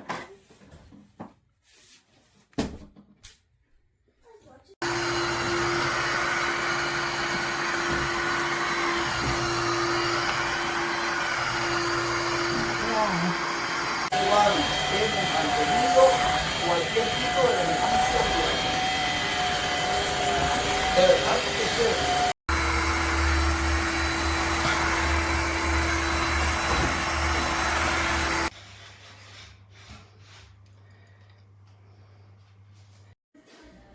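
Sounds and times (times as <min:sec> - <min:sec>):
wet-dry vacuum running: 0:04.8 - 0:28.6.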